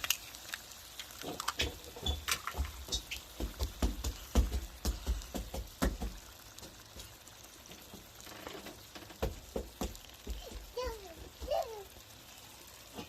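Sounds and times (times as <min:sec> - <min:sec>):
irregular knocks and clicks: 0:01.3 - 0:10.7.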